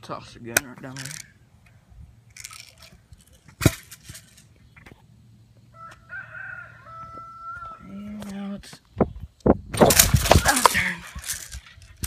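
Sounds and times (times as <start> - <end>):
rustling handling noises: 0.8 - 1.3, 2.3 - 5.0, 9.9 - 12.0.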